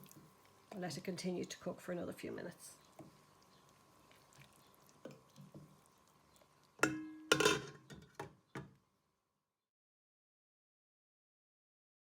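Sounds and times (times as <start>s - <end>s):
cookware scraping: 6.8s - 8.1s
metal cookware clanking: 6.8s - 8.1s.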